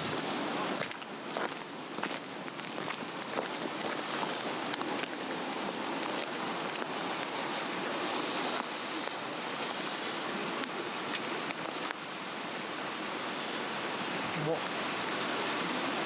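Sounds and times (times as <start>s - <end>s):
rush of flame: 0.0s - 1.0s
fire crackles and pops: 0.0s - 9.9s.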